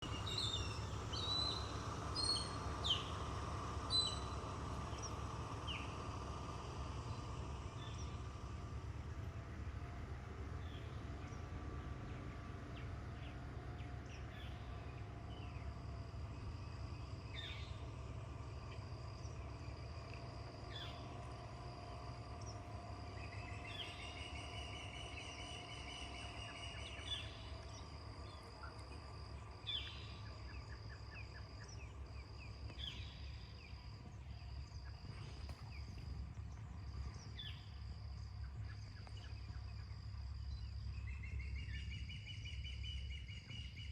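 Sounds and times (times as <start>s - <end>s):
birds chirping: 0.0s - 43.9s
high insect drone: 0.0s - 43.9s
low rumble: 0.0s - 43.9s.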